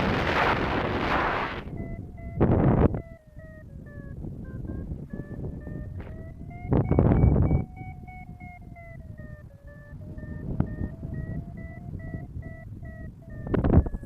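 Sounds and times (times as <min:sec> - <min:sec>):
wind on microphone: 0:00.0 - 0:14.0
variometer beeping: 0:00.7 - 0:14.0.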